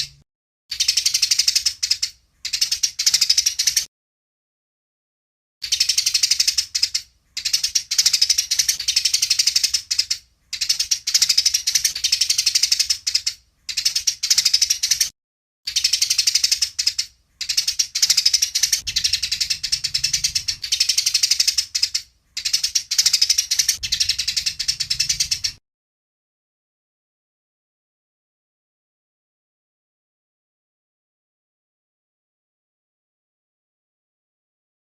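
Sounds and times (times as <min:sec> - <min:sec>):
sparrows chattering: 0:00.0 - 0:03.9, 0:05.6 - 0:15.1, 0:15.7 - 0:25.6.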